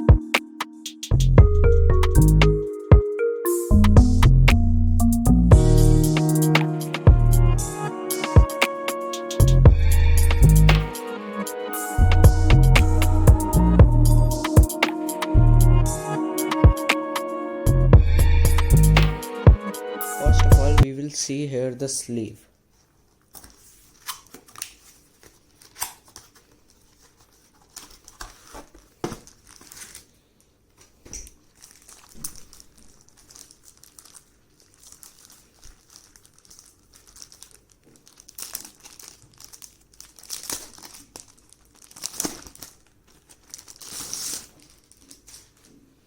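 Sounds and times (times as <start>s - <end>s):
packaging crinkling: 23.1s - 46.0s.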